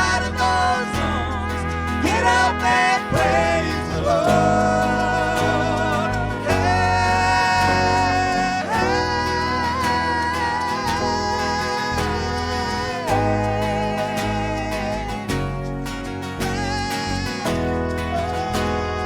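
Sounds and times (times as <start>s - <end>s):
lead voice holding long notes: 0.0s - 19.0s
worship band playing: 0.0s - 19.0s.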